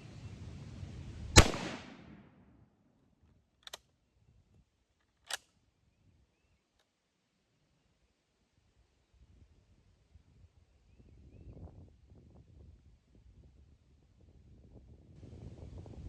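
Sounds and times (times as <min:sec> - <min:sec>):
rifle shot with echo: 0:01.4 - 0:02.4.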